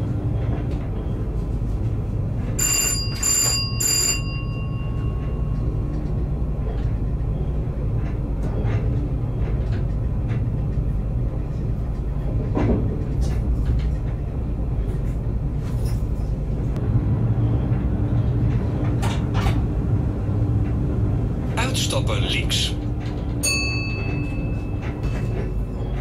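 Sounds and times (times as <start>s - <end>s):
electric train rumbling: 0.0s - 26.0s
rail clicks: 0.0s - 26.0s
bell chime: 2.6s - 5.8s, 23.4s - 25.8s.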